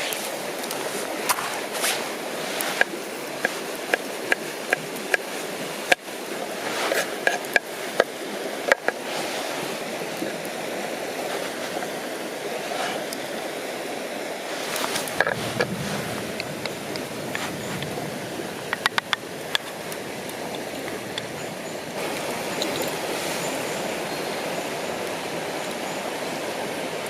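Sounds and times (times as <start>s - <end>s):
river water running: 0.0s - 27.0s.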